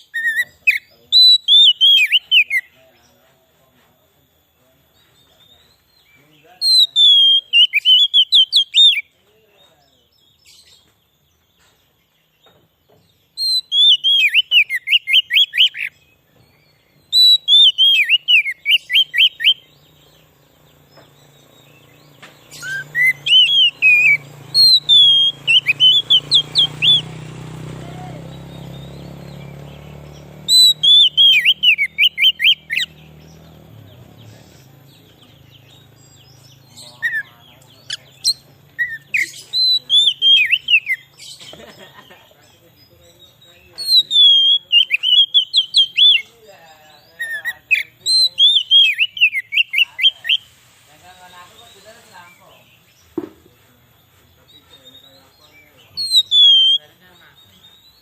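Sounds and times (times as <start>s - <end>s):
bird whistling rapid notes: 0.0s - 2.7s, 6.6s - 9.1s, 13.3s - 16.0s, 17.0s - 19.7s, 21.6s - 33.1s, 35.0s - 41.4s, 43.8s - 46.3s, 47.2s - 50.5s, 55.5s - 57.1s.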